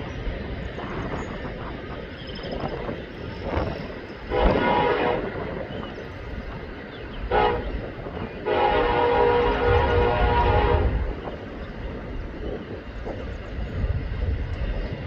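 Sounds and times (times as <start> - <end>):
train horn blasts: 4.3 - 5.6, 7.3 - 11.2.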